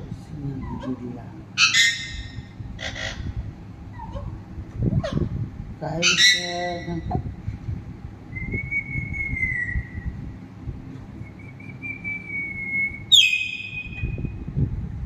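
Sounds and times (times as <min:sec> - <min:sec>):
parrot squawk: 0:01.6 - 0:03.3, 0:06.0 - 0:06.7
long even whistles: 0:11.2 - 0:14.1.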